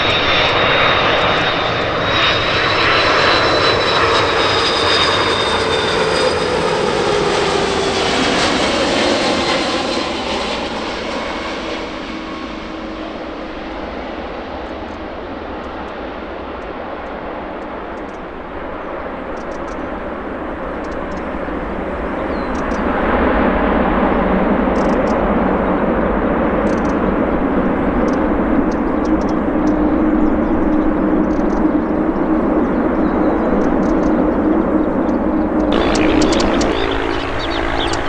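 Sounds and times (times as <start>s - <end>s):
jet airliner engines roaring: 0.0s - 12.6s, 35.7s - 38.0s
low steady hum: 35.8s - 38.0s.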